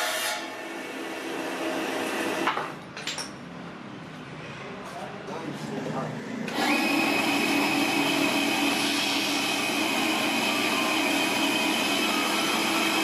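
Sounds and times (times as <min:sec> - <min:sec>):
power tool motor whining: 0:06.5 - 0:13.0.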